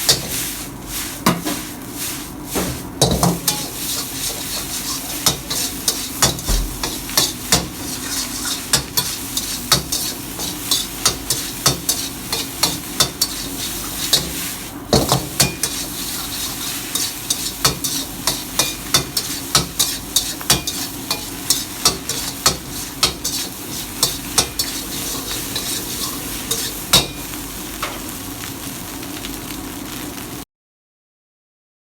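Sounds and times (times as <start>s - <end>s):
food sizzling in a pan: 0.0s - 30.4s
metal utensil clacking on pan: 16.9s - 28.0s.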